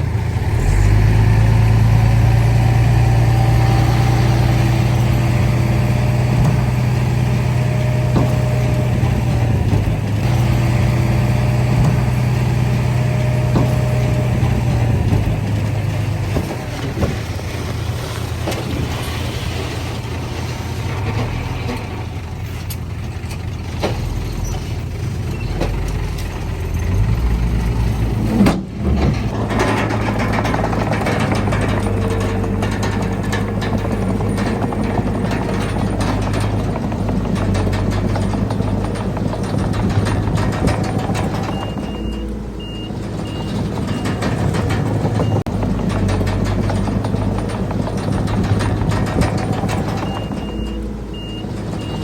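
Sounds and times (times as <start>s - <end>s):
heavy diesel engine running: 0.0s - 52.0s
faint clanks: 28.3s - 52.0s.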